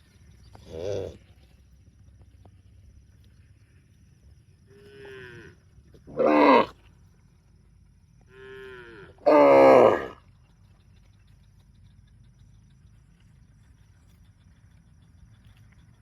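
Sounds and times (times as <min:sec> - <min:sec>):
cow mooing: 0:04.9 - 0:06.7, 0:08.3 - 0:10.2.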